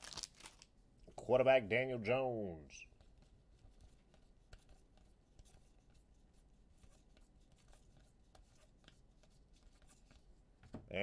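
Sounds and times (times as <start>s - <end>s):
trading cards rustling: 0.0s - 0.7s.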